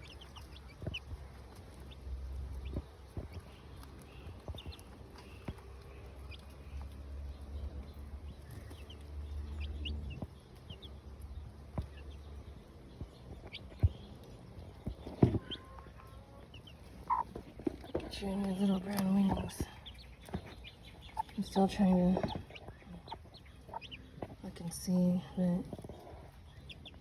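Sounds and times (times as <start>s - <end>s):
chicks peeping: 0.0s - 27.0s
hen clucking softly: 15.2s - 17.9s, 21.0s - 24.4s.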